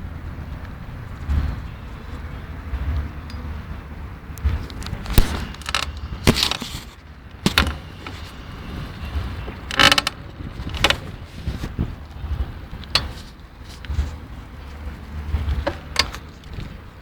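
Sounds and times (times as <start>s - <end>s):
bike frame cracking and creaking: 4.4s - 17.0s.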